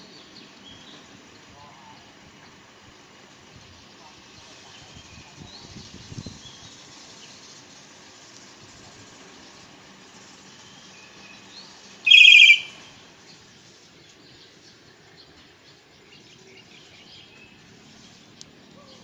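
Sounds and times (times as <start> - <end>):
faint birds chirping: 10.6 - 19.0
loud trilled bird call: 12.0 - 12.9.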